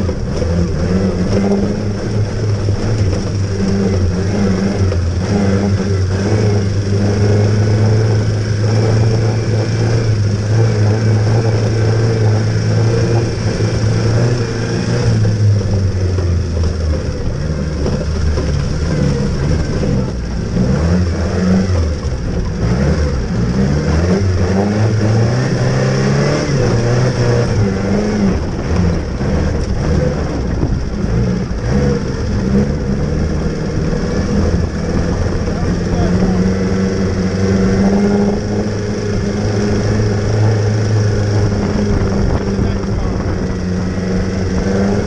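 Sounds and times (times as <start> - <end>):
car engine running under load: 0.0 - 45.0.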